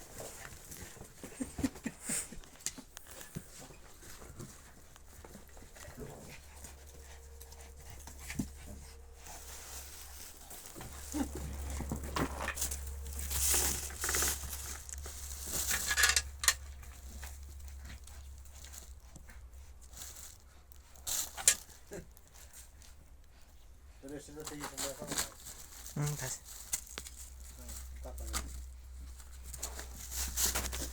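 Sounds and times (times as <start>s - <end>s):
dogs panting: 0.0s - 15.8s, 16.4s - 24.4s
knocks and rustles: 0.0s - 18.9s
dogs scuffling: 0.0s - 21.8s, 24.0s - 30.9s.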